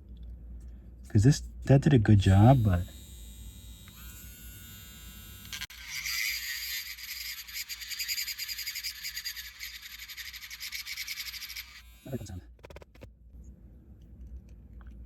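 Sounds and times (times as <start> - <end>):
power tool whine: 2.3 - 12.8
bit grinding into resin: 2.3 - 13.1.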